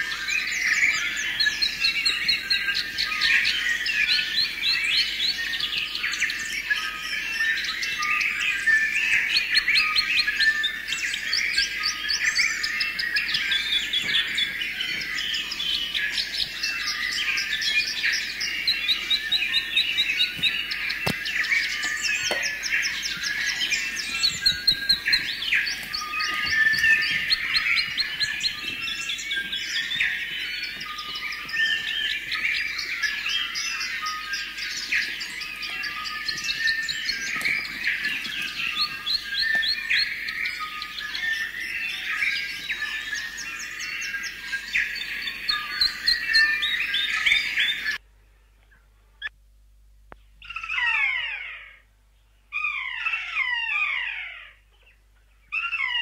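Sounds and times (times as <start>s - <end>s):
songbirds chorus chirping and trilling: 0.0s - 49.3s, 50.1s - 56.0s.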